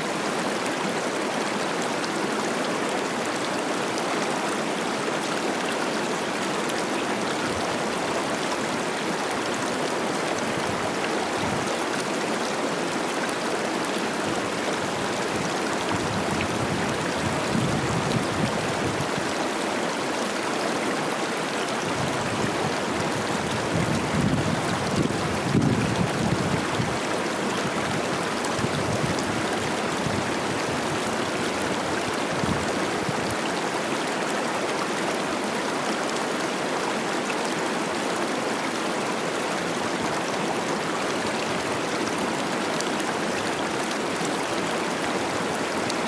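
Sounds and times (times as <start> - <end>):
river rushing over rocks: 0.0 - 46.0
wind gusts on microphone: 14.9 - 19.3, 21.9 - 27.0, 27.6 - 33.4.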